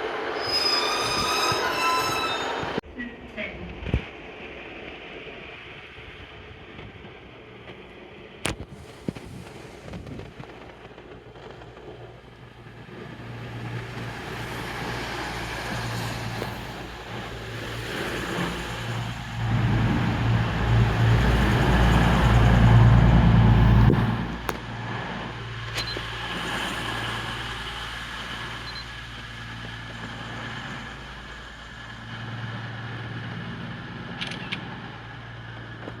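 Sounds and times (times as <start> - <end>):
vehicle engine approaching: 13.2 - 34.2
sharp click: 34.2 - 34.6.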